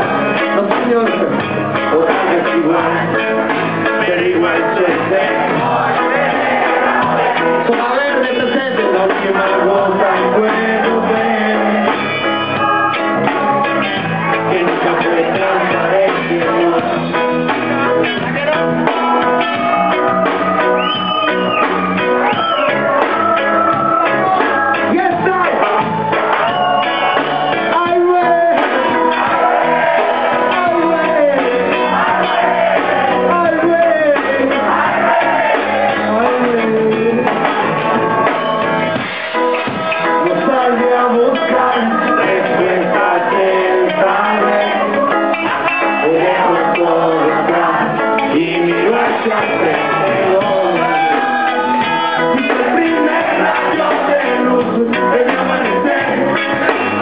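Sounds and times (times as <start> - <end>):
live reggae band: 0.0 - 57.0.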